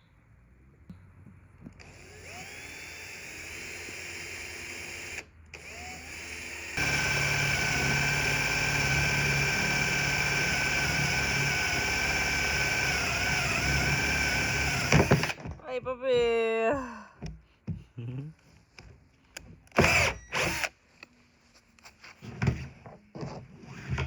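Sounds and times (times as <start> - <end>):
small electric motor whining: 1.8 - 15.4, 19.8 - 20.7.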